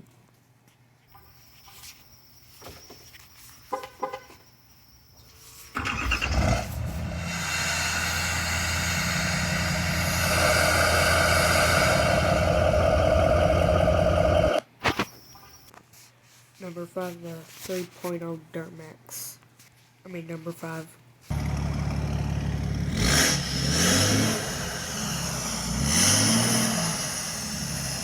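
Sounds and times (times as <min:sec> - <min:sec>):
diesel engine starting and running: 0:05.6 - 0:14.6, 0:21.3 - 0:28.0.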